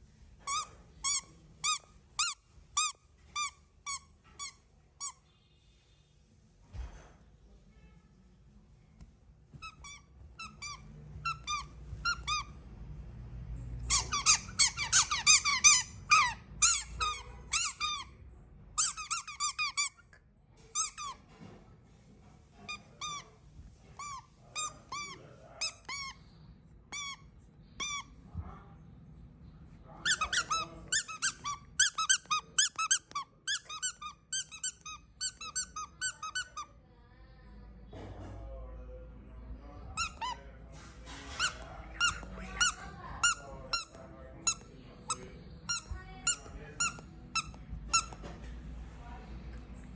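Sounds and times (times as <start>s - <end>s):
squeaky baby toys squeaking: 0.4s - 5.2s, 9.6s - 12.6s, 13.8s - 18.1s, 18.8s - 20.0s, 20.8s - 21.2s, 24.0s - 26.2s, 26.9s - 28.2s, 30.1s - 36.7s, 40.0s - 40.5s, 41.3s - 48.2s.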